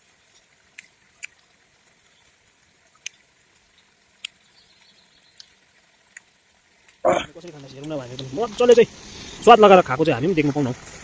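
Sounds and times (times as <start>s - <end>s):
mouth clicks and smacks: 0.7s - 1.4s.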